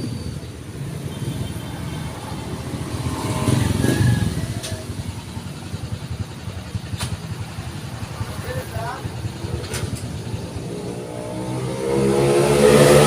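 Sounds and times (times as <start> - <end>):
vehicle passing by: 0.8 - 6.2, 7.3 - 13.0.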